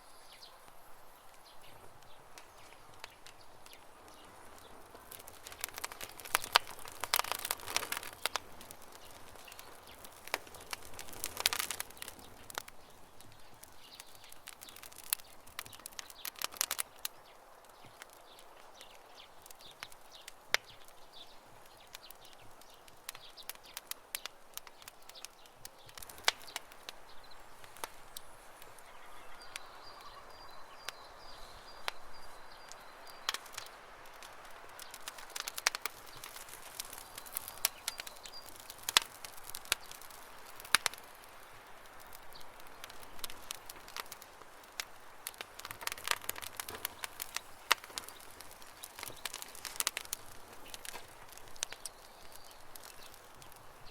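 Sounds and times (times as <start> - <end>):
campfire crackling and popping: 0.0 - 53.9.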